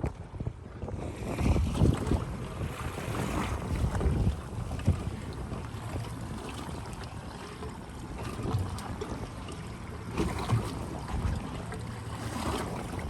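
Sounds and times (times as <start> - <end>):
wind rushing over microphone: 0.0 - 5.6
water noise: 0.0 - 13.0
boat bumps: 1.3 - 13.0.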